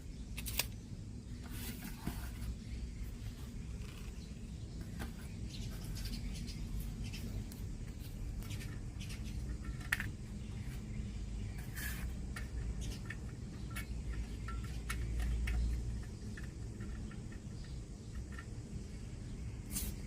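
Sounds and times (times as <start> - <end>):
steady low hum: 0.0 - 20.0
small clicks of parts handled: 0.4 - 0.8.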